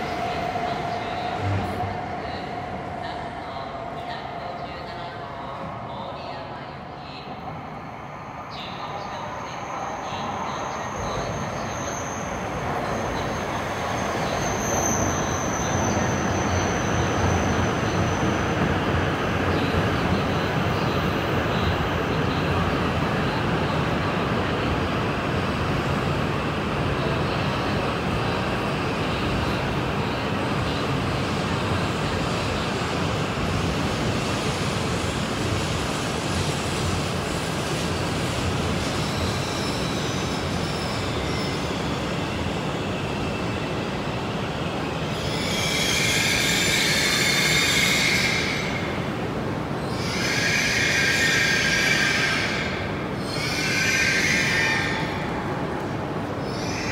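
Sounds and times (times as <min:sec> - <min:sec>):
train rolling with rumble: 0:00.0 - 0:07.1, 0:08.6 - 0:56.9
high-pitched brake squealing: 0:39.0 - 0:42.3, 0:45.1 - 0:48.7.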